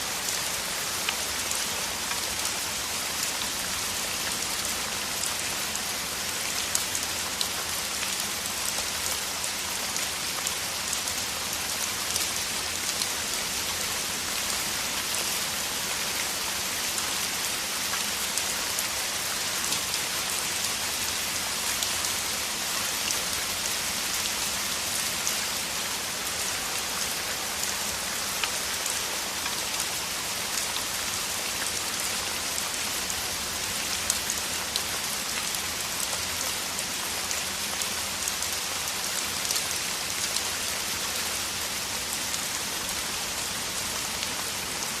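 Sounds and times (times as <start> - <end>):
heavy rain falling: 0.0 - 45.0.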